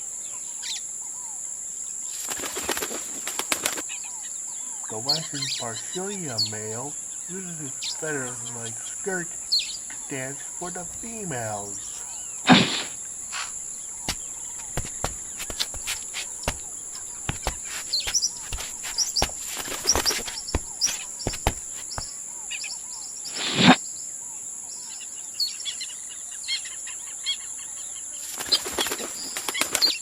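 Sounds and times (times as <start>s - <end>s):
insects buzzing: 0.0s - 30.0s
short bird chirps: 4.8s - 23.8s.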